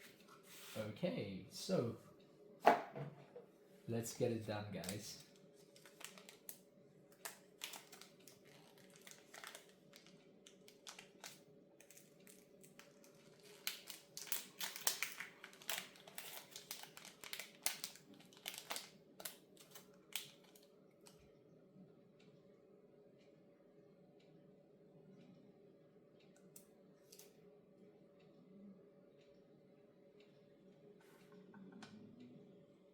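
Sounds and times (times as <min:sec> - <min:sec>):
faint steady hum: 0:00.0 - 0:32.9
plastic packaging crinkling: 0:04.8 - 0:06.6, 0:07.2 - 0:20.6.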